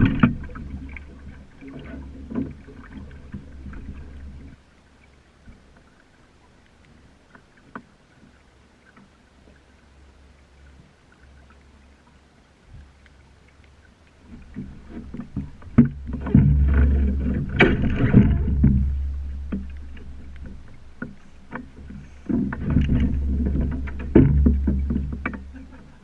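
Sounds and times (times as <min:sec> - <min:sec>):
boat knocking: 0:00.0 - 0:04.5, 0:14.4 - 0:26.0
water rushing along boat hull: 0:00.0 - 0:26.0
low rumble: 0:15.5 - 0:26.0.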